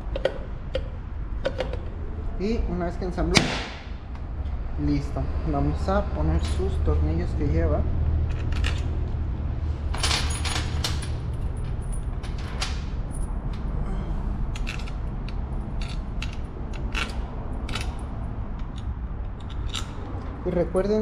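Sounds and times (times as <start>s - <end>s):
steady low hum: 0.0s - 21.0s
metallic clicks of bolts: 14.6s - 20.1s.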